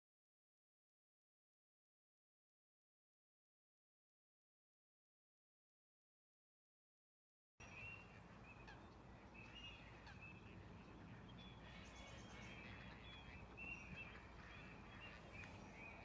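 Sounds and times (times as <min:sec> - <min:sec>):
faint birdsong chirps: 0:07.6 - 0:16.0.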